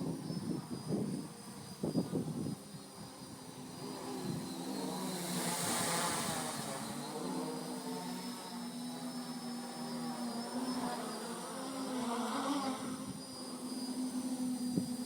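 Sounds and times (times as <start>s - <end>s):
quadcopter motors buzzing: 0.0s - 15.0s.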